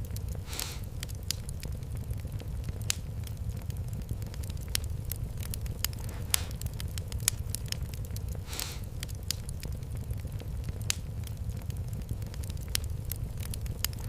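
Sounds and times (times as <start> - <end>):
wood fire crackling: 0.0 - 14.0
short hiss: 0.5 - 0.9, 8.5 - 8.8.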